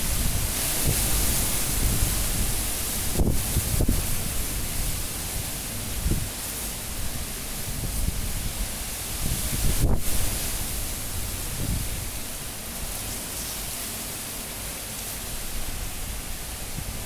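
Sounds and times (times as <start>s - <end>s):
strong wind gusting: 0.0s - 6.3s, 6.9s - 12.3s.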